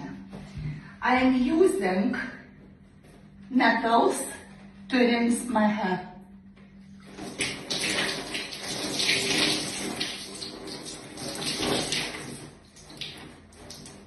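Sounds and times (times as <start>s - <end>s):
water pouring and splashing: 7.1s - 14.0s.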